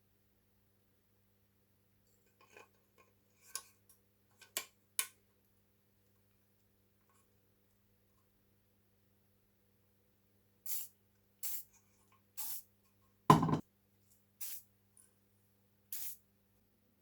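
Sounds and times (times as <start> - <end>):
hissing spray bursts: 16.0 - 16.2.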